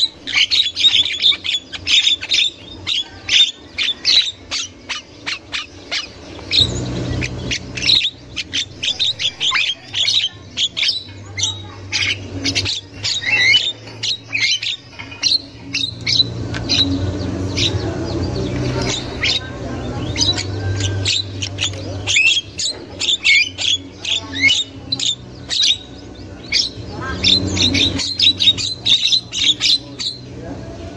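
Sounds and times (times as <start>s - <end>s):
birds squawking and chattering: 0.0s - 30.9s
low hum: 0.0s - 30.9s.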